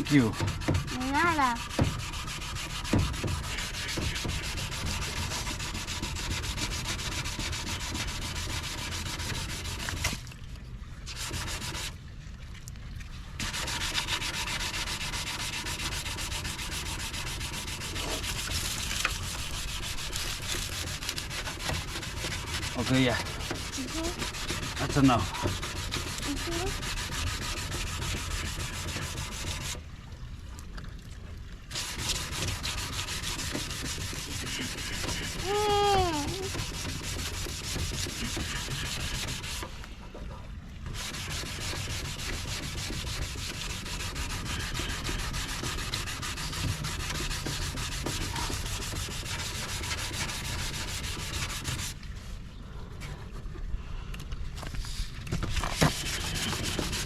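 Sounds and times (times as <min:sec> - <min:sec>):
wet sanding plastic: 0:00.0 - 0:10.3, 0:11.0 - 0:12.0, 0:13.4 - 0:29.8, 0:31.7 - 0:52.3, 0:54.6 - 0:57.0.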